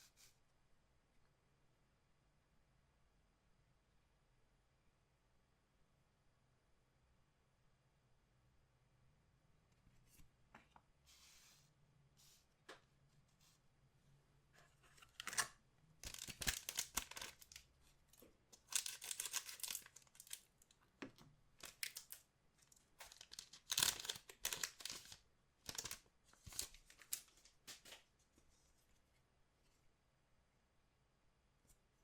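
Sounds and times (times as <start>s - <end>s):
card pack wrappers tearing and crinkling: 15.0s - 17.7s, 18.6s - 20.5s, 21.6s - 22.2s, 23.0s - 28.0s.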